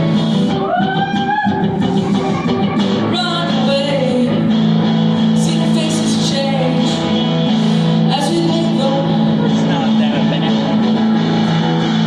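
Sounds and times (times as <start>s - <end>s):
held instrumental chords: 0.0s - 12.0s
woman singing: 2.9s - 4.7s, 5.3s - 7.2s, 7.9s - 10.0s.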